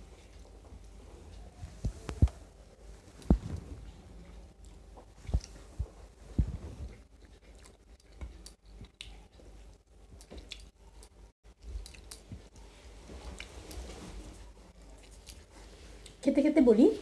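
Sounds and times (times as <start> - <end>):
people chewing: 3.2 - 16.2.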